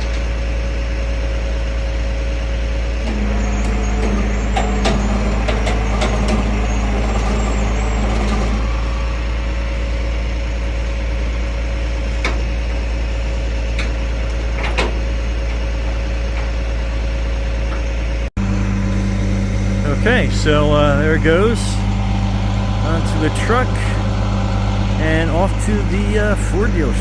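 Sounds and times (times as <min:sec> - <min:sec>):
truck engine running: 0:00.0 - 0:27.0
steady whine: 0:03.0 - 0:12.2, 0:18.4 - 0:27.0.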